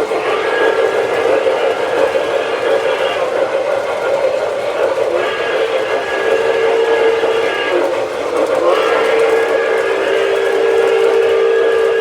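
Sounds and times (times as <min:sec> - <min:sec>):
steam whistle blasts: 0:00.0 - 0:04.2, 0:04.8 - 0:12.0.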